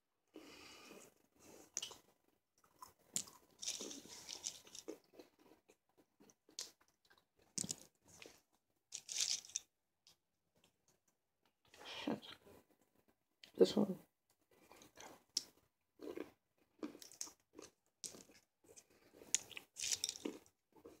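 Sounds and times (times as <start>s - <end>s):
pistachios crunching when chewed: 1.7s - 2.0s, 2.6s - 8.4s, 9.0s - 9.7s, 14.6s - 21.0s.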